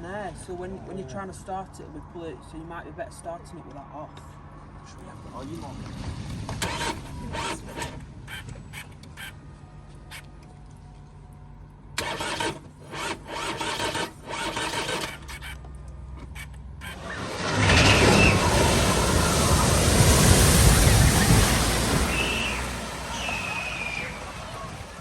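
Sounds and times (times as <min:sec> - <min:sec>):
vehicle splashing through water: 0:05.1 - 0:08.4, 0:12.0 - 0:25.0
short bursts of noise: 0:06.6 - 0:09.4, 0:12.0 - 0:15.7.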